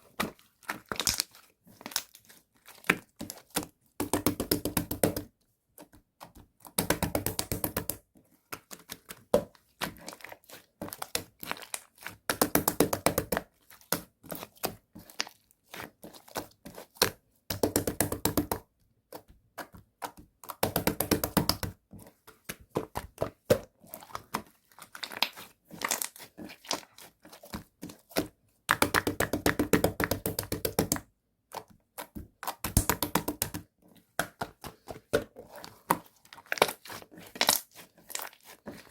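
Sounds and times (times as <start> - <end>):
slime crackling and popping: 0.7 - 3.4, 35.9 - 38.5.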